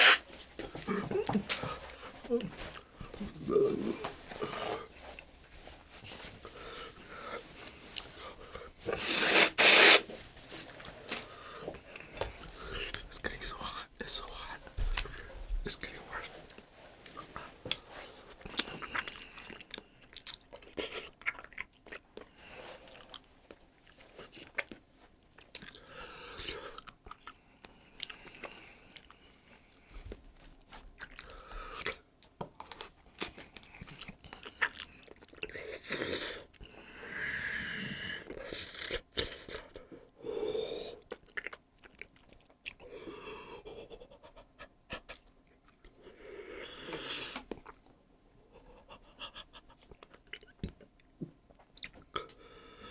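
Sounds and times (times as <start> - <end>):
breathy hiss of air: 0.0 - 0.3, 8.9 - 10.1
chewing and crunching chip: 18.4 - 29.2, 30.9 - 36.8, 41.0 - 42.9, 49.7 - 52.4.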